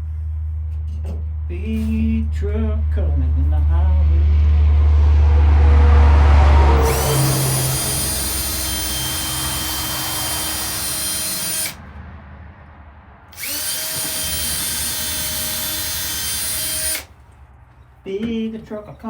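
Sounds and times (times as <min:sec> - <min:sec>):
power drill whining: 0:06.8 - 0:11.8, 0:13.3 - 0:17.2.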